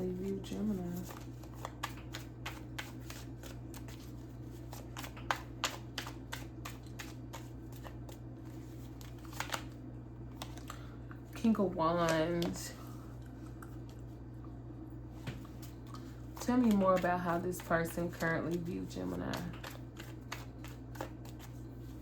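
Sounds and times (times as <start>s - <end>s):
cards being shuffled: 0.2s - 10.7s, 15.6s - 22.0s.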